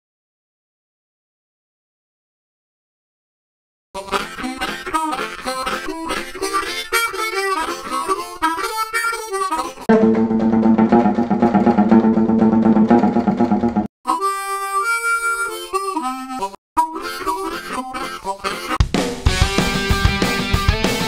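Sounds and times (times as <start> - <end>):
harmonica playing: 4.0 - 10.5, 14.0 - 18.8.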